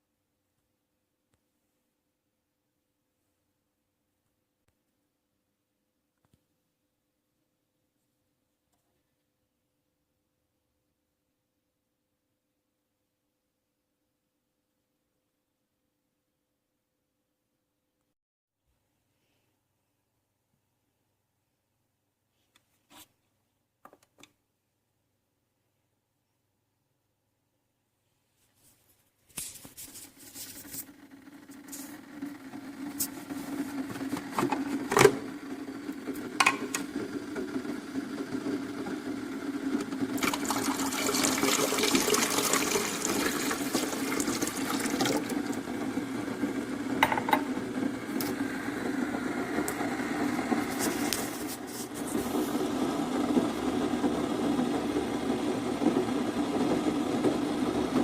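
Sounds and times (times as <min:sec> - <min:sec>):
coffee maker pump humming: 0:29.9 - 0:58.0
hot water hissing: 0:40.2 - 0:45.7.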